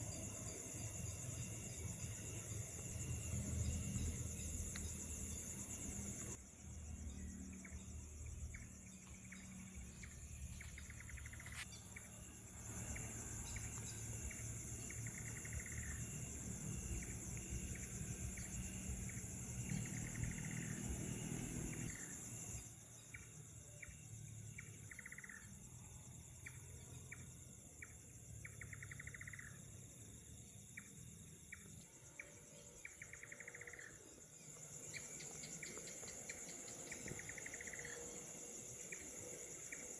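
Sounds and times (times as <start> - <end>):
low steady hum: 0.0 - 22.6
insects trilling: 0.0 - 39.9
short insect chirps: 0.0 - 39.9.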